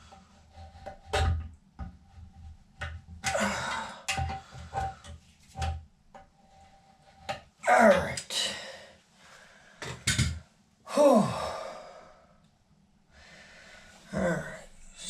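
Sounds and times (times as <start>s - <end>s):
toilet parts and tools clunking: 0.6s - 6.3s, 9.8s - 10.4s.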